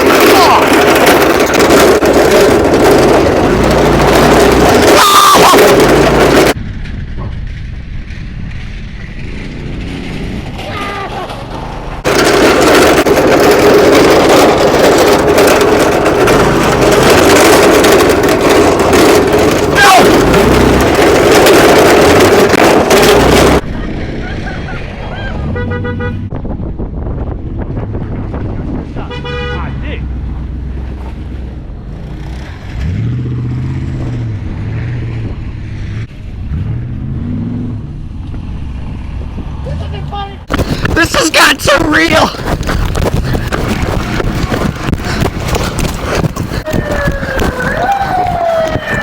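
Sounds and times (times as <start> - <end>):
vehicle engine running loud: 0.0 - 49.0.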